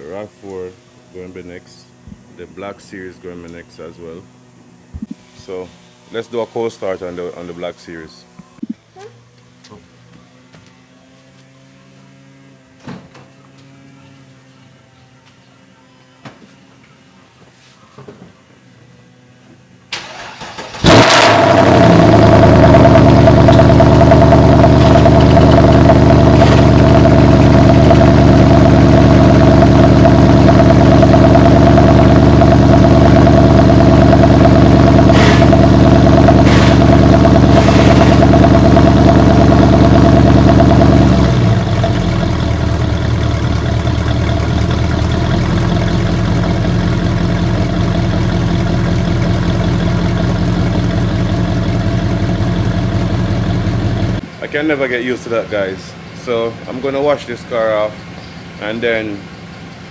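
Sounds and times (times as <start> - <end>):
car engine bark and idle: 19.9 - 54.3.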